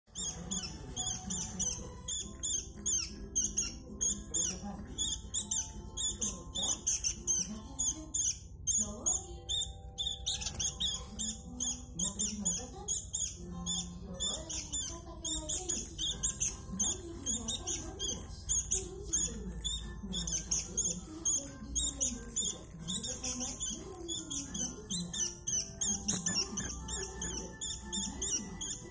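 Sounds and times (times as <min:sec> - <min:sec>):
bird chirping rapidly: 0:00.1 - 0:28.9.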